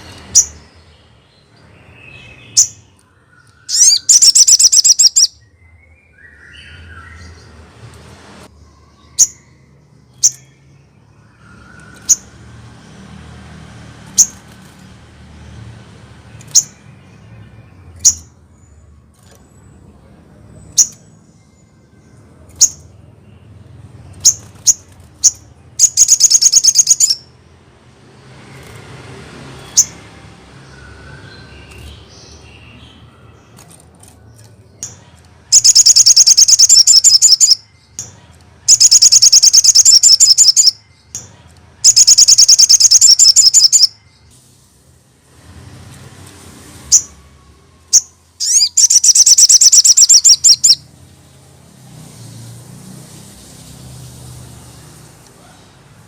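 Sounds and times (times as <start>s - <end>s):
bird high chips: 3.6s - 5.3s, 24.2s - 27.3s, 34.9s - 44.0s, 48.0s - 50.8s
bird rapid high trill: 3.7s - 5.4s, 24.2s - 27.3s, 35.5s - 37.6s, 38.7s - 40.8s, 41.8s - 44.0s, 47.9s - 50.9s.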